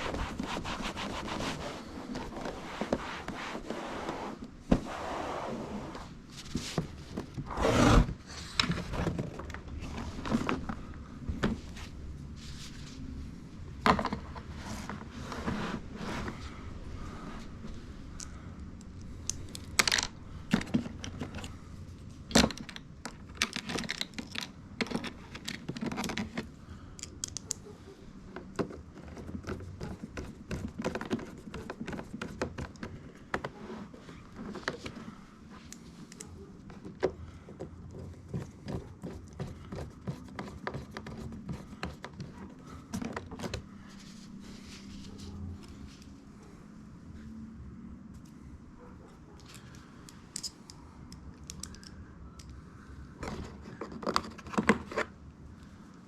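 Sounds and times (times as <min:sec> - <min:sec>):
small hard parts clicking and rattling: 0:22.3 - 0:27.6, 0:49.4 - 0:52.6.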